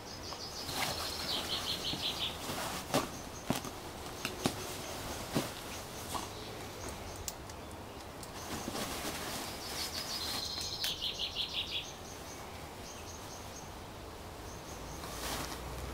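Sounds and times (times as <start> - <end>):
small bird singing with trill: 0.0 - 2.5, 9.6 - 13.7
garden background noise: 0.0 - 15.9.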